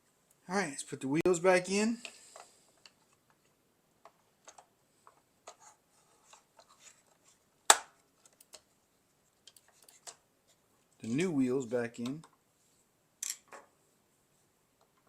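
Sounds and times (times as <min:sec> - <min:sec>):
plastic clicks and scrapes: 0:02.0 - 0:07.4
sharp plastic snap: 0:07.7 - 0:08.0.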